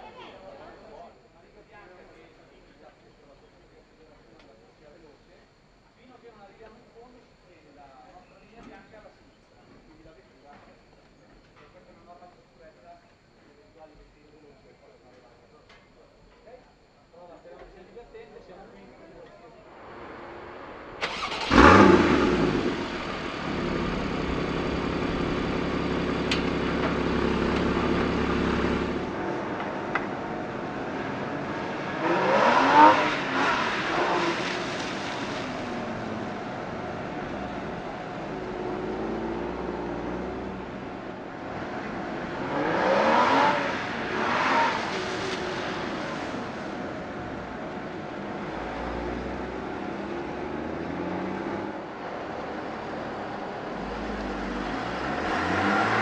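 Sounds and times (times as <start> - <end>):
car engine revving: 19.8 - 56.0
car engine starting and idling: 20.0 - 56.0.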